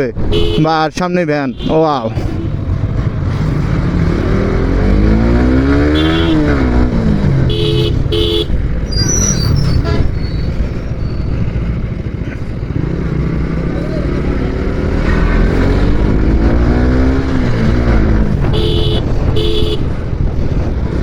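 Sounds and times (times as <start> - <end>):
vehicle horn beeps: 0.3 - 0.7, 5.9 - 6.6, 7.5 - 11.4, 18.5 - 20.0
motorcycle engine revving: 2.2 - 21.0.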